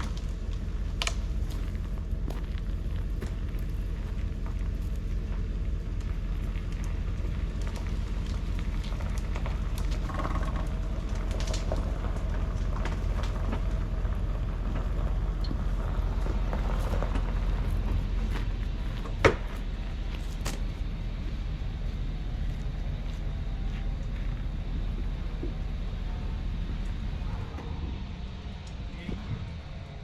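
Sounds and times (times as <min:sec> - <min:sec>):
small clicks and snaps: 0:00.0 - 0:01.3
engine idling: 0:00.0 - 0:30.0.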